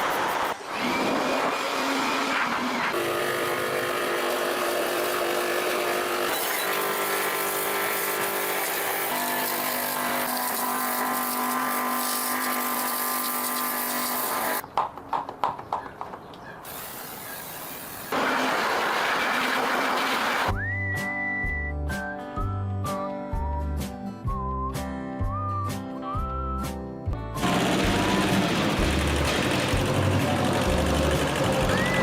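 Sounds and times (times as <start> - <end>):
machinery running: 27.4 - 32.0.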